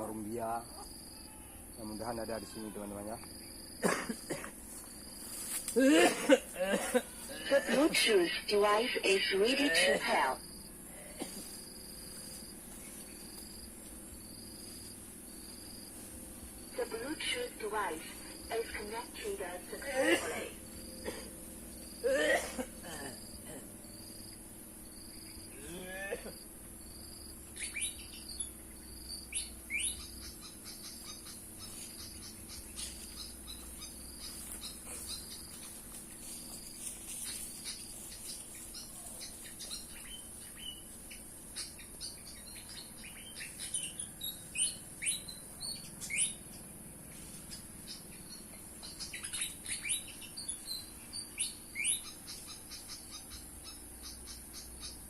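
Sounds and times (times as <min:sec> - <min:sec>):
high insect drone: 0:00.0 - 0:55.0
bird chirping: 0:27.2 - 0:55.0.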